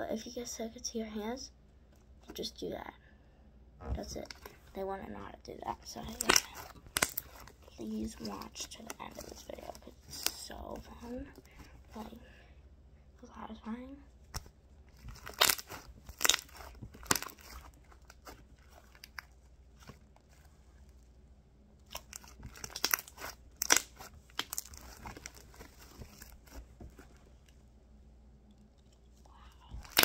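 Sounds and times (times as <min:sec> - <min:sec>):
slime popping and crackling: 0:05.8 - 0:11.2, 0:14.3 - 0:20.0, 0:21.8 - 0:26.7, 0:29.7 - 0:30.0.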